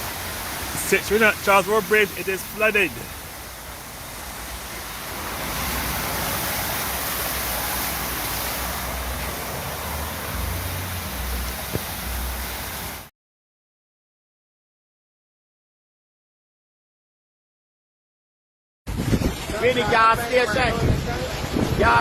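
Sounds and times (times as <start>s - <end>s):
floodwater rushing: 0.0s - 13.1s, 18.9s - 22.0s.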